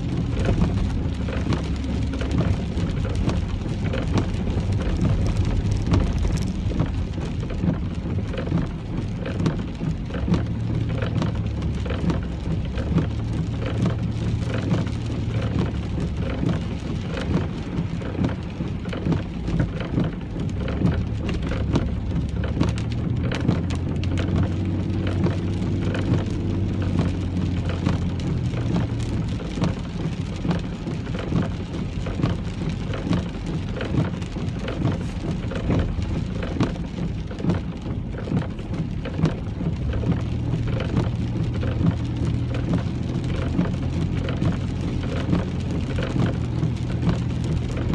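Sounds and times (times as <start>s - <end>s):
car engine hum: 0.0s - 47.9s
rain pattering on car: 0.0s - 47.9s
road noise: 0.0s - 47.9s.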